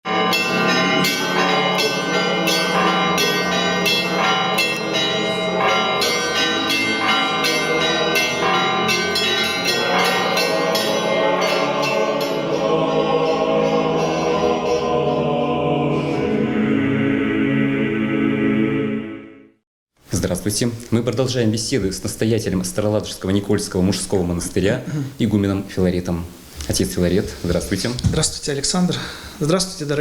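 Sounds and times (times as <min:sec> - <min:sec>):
church bells pealing: 0:00.1 - 0:15.3
choral singing: 0:00.2 - 0:19.6.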